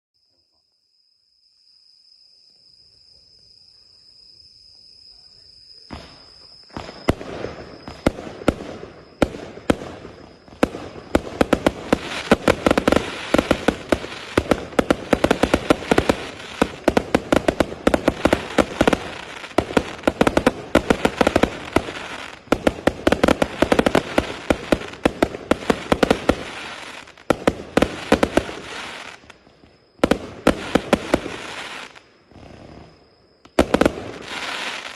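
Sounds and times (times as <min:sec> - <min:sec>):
faint hiss: 0:02.5 - 0:34.9
firework cake firing: 0:06.8 - 0:29.3.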